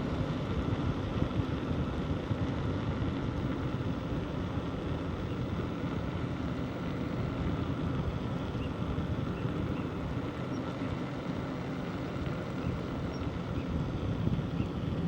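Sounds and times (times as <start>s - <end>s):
wind on microphone: 12.7s - 15.0s.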